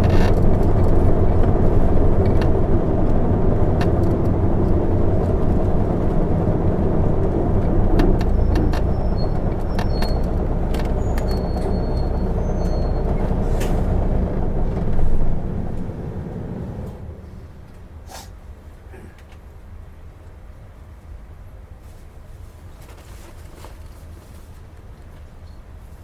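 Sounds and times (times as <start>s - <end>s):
cabin fittings rattling: 0.0s - 16.9s
bus diesel engine running: 0.0s - 19.2s
road noise: 0.0s - 19.8s.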